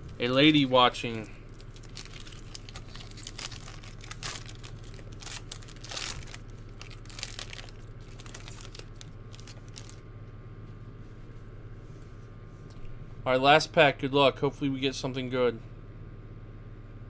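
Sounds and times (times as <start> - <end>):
wrapper crinkling and tearing: 0.4 - 10.0.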